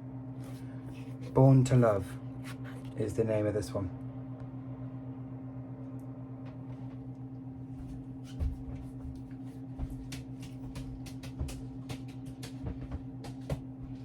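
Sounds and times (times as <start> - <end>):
low electrical hum: 0.0 - 14.0
records clicking and rustling: 8.3 - 14.0.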